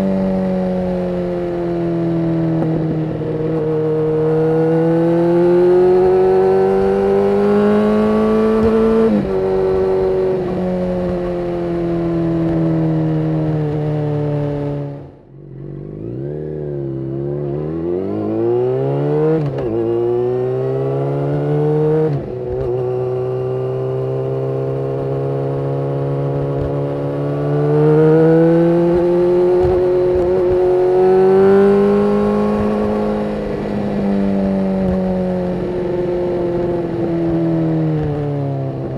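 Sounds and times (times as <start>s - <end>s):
motorcycle engine accelerating through gears: 0.0s - 38.9s.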